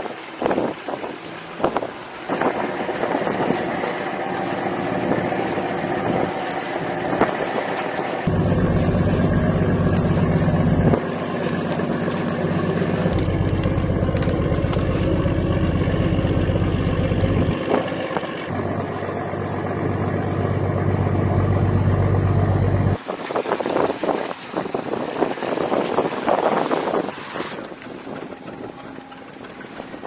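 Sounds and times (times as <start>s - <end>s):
wind buffeting microphone: 0.0s - 4.0s, 22.9s - 30.0s
boat engine humming: 0.0s - 30.0s
water noise: 0.0s - 30.0s.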